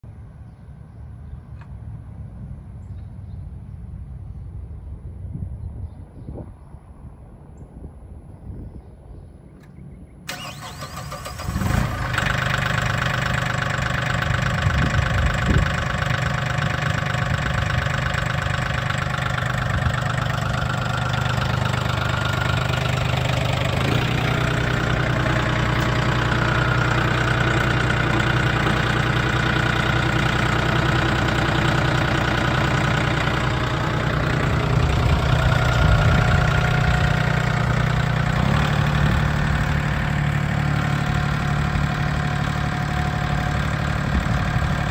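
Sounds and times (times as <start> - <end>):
tractor diesel engine starting: 10.3 - 44.9
tractor engine idling: 10.3 - 44.9.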